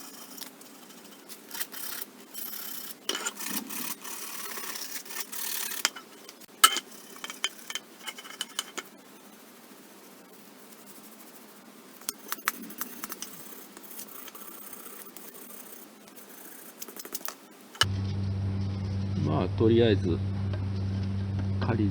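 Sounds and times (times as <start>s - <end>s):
small parts and tools clicking: 0.0s - 9.3s, 12.0s - 17.9s.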